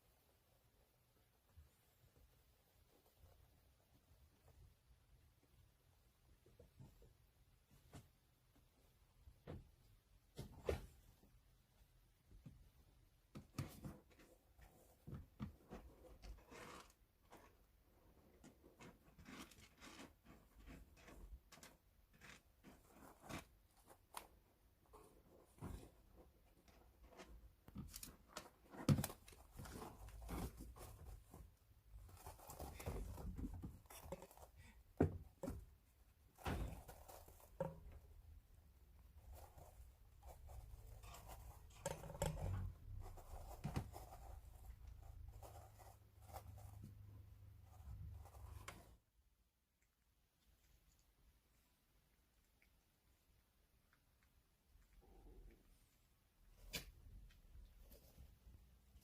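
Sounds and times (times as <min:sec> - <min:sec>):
kittens playing knocks and thuds: 0:06.4 - 0:11.3, 0:12.2 - 0:16.5, 0:24.9 - 0:49.0
light taps and soft thumps: 0:06.4 - 0:16.4
scratchy rustling: 0:15.6 - 0:49.1.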